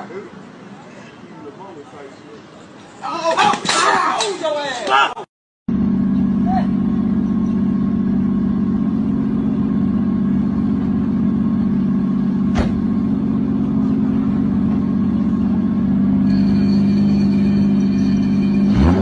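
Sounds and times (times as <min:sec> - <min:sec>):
vehicle engine droning: 0:05.7 - 0:19.0.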